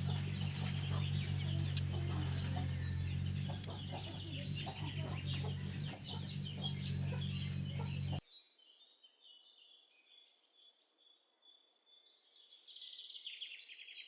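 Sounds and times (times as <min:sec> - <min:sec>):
chickens clucking: 0:00.0 - 0:08.2
faint high chirps: 0:00.0 - 0:08.2
steady low hum: 0:00.0 - 0:08.2.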